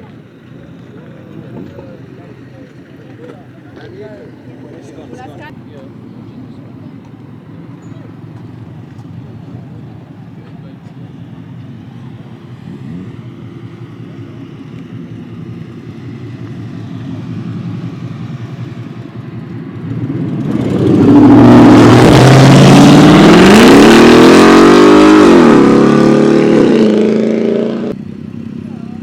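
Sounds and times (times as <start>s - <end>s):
steady engine sound: 0.0s - 29.0s
car engine revving: 10.9s - 29.0s.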